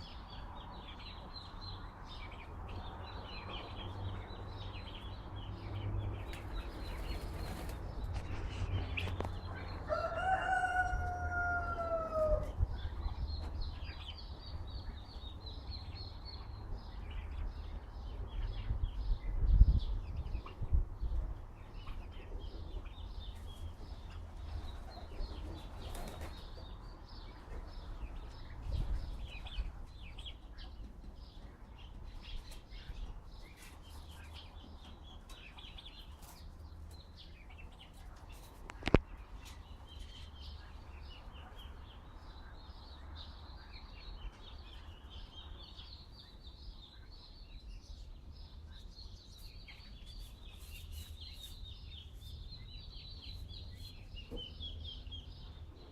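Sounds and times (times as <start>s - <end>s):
small birds chirping: 0.0s - 55.9s
wind rumble on microphone: 16.8s - 21.6s.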